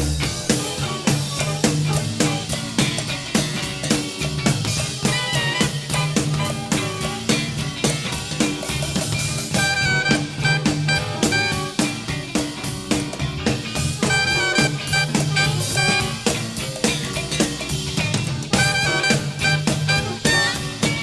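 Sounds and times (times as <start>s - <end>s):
drum kit beat: 0.0s - 21.0s
jazz-funk band playing: 0.0s - 21.0s
saxophone phrases: 9.5s - 12.0s, 14.0s - 16.5s, 18.5s - 21.0s.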